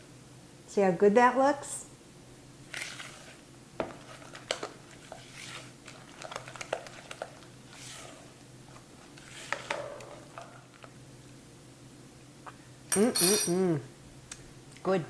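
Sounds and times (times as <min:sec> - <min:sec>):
utensil stirring in a bowl: 0:02.6 - 0:11.0.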